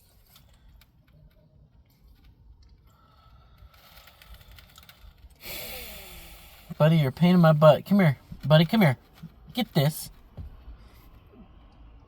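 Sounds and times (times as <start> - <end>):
faint clicks and rustles: 0.0 - 5.4.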